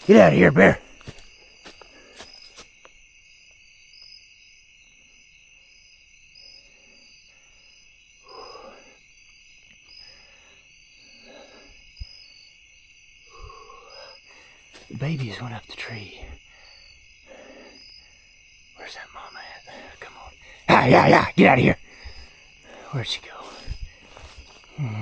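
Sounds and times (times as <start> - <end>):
insect chorus: 0.0 - 25.0
short low calls: 20.5 - 25.0.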